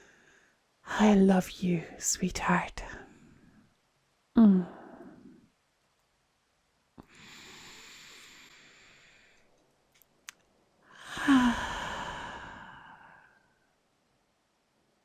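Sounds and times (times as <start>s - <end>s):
woman breathing slowly: 0.0s - 0.7s, 7.0s - 9.5s, 10.8s - 13.6s
woman sighing: 4.4s - 5.3s, 11.0s - 13.3s.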